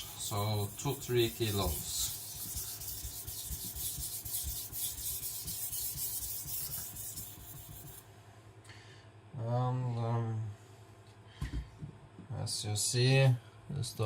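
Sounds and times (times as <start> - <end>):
knife scraping on whetstone: 0.0 - 8.0.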